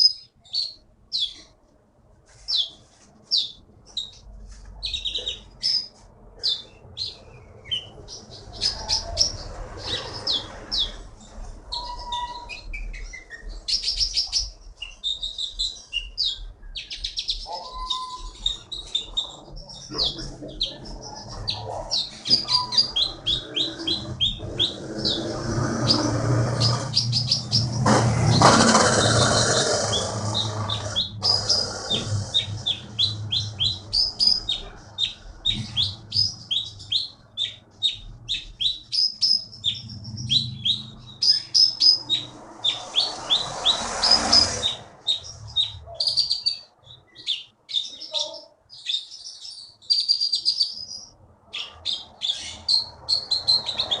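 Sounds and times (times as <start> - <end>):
songbird chirping: 0.0 - 54.0
rustling: 2.2 - 5.1.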